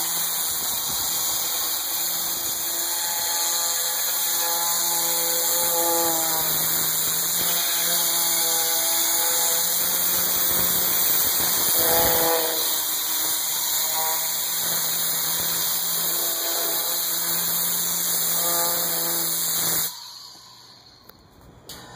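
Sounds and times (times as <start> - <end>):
steam jet blowing: 0.0 - 3.8, 17.4 - 21.0.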